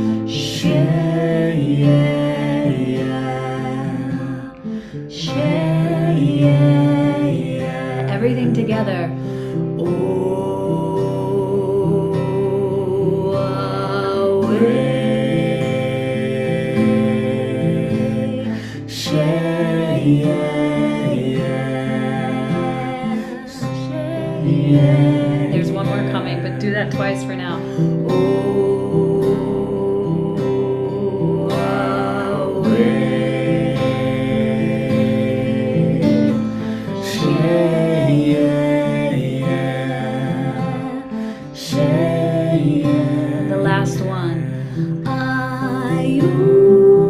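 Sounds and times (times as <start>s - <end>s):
breaths: 0.0s - 0.3s, 4.6s - 5.1s, 9.2s - 9.8s, 18.5s - 18.9s, 27.6s - 28.0s, 36.4s - 37.0s, 41.1s - 41.6s, 44.6s - 45.0s
voices chanting in harmony: 0.0s - 47.0s
plucked strings: 13.2s - 47.0s.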